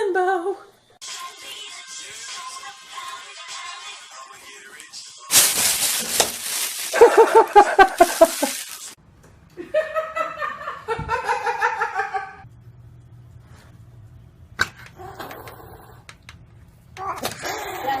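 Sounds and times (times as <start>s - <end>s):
person laughing: 6.8s - 8.8s.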